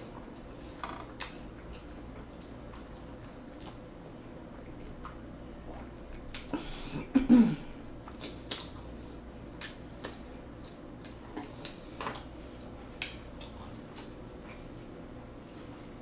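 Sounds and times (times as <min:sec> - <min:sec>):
chewing: 0:00.0 - 0:03.9, 0:08.0 - 0:14.9.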